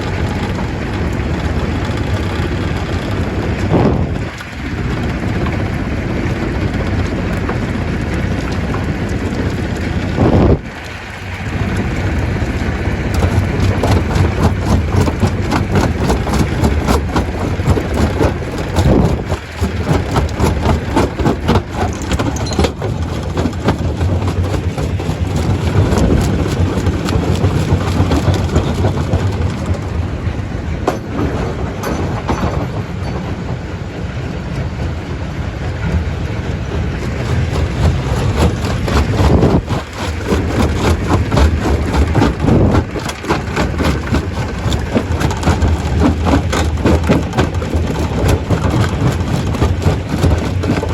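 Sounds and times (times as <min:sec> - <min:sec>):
stone crusher humming: 0:00.0 - 0:33.6, 0:35.8 - 0:50.9
rocks clattering: 0:11.7 - 0:33.2, 0:36.7 - 0:50.9.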